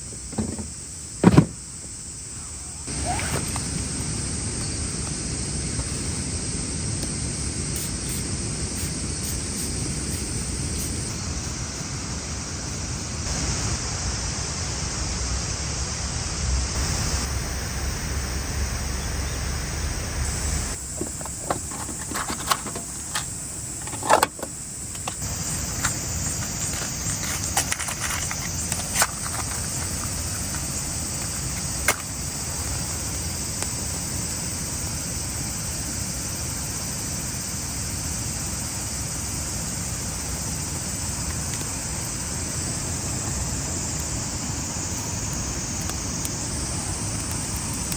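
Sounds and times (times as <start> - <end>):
outdoor background noise: 0.0 - 47.9.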